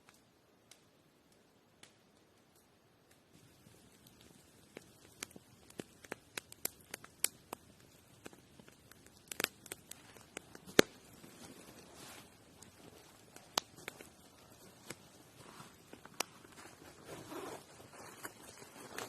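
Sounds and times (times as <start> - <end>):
sharp clicks and snaps: 0.0 - 3.2, 4.0 - 11.0, 13.4 - 14.1
soft rustle: 7.8 - 19.0.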